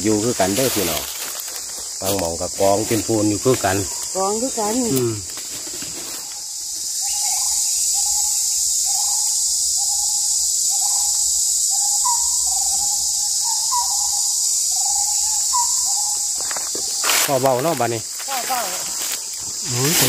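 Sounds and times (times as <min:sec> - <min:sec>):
high-pitched insect drone: 0:00.0 - 0:20.0
bird hooting: 0:06.2 - 0:16.6.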